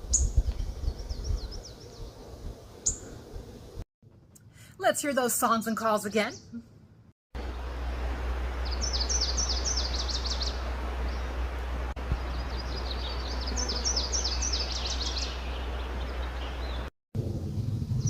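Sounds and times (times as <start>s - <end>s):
warbler singing: 0.0s - 3.2s, 8.5s - 16.9s
steady low hum: 7.4s - 18.0s.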